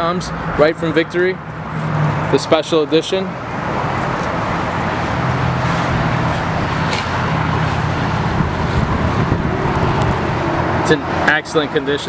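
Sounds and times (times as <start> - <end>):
vehicle engine running: 3.9 - 12.0.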